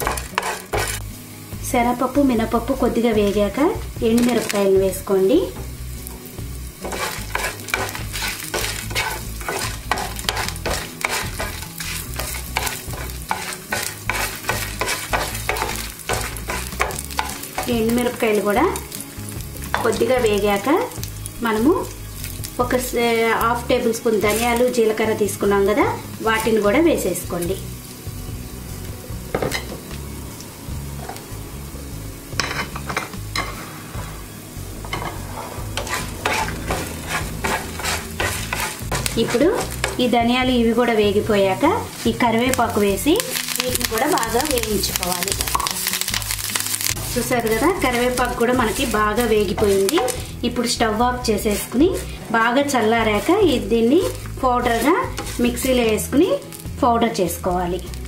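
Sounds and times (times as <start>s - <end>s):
spatula scraping pan: 0.0s - 1.0s, 6.8s - 18.9s, 34.8s - 40.2s, 41.5s - 56.3s
lentils sizzling in hot oil: 0.0s - 58.0s
crackles and pops: 41.9s - 50.2s.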